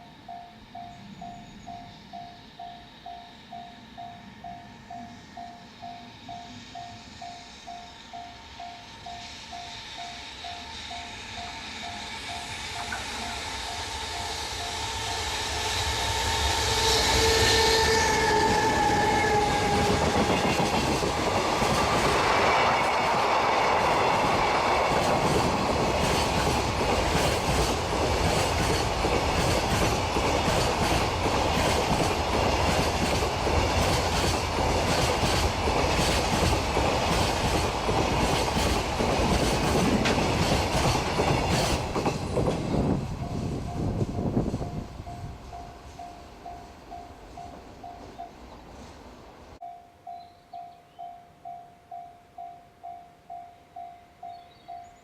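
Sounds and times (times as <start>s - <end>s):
electric locomotive whine: 0.0s - 55.0s
train wheels clacking over rail joints: 10.4s - 43.4s.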